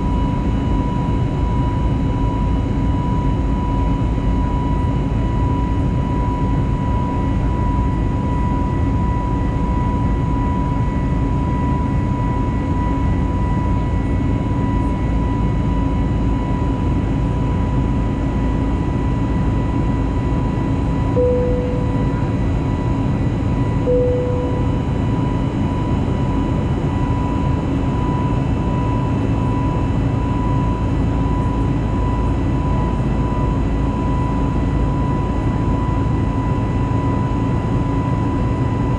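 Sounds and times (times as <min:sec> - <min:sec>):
high-pitched whine: 0:00.0 - 0:38.8
aircraft cabin rumble: 0:09.8 - 0:34.2
brief cabin tones: 0:21.2 - 0:22.4, 0:23.9 - 0:24.9.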